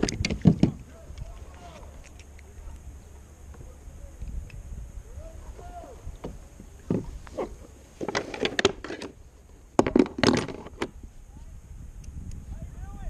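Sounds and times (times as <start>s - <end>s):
knocks and rattles against kayak: 0.0s - 2.2s, 5.5s - 11.1s.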